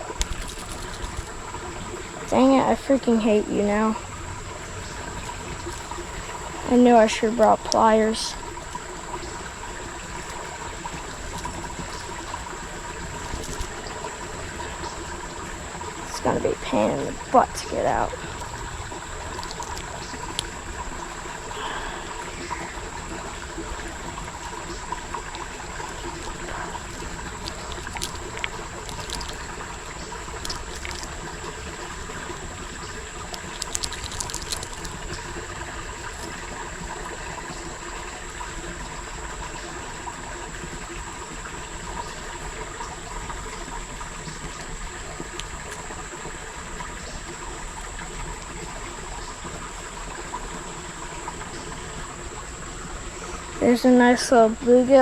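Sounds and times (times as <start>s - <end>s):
creek water trickling: 0.0s - 55.0s
faint clicks: 0.1s - 1.5s, 10.0s - 15.0s, 18.1s - 21.4s, 22.0s - 36.6s.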